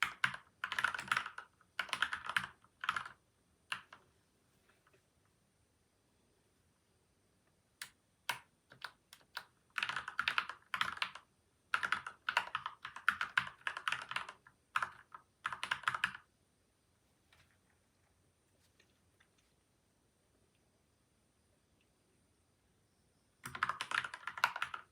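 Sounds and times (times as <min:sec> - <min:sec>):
mechanical keyboard typing: 0:00.0 - 0:04.0, 0:07.8 - 0:16.2, 0:23.4 - 0:24.9.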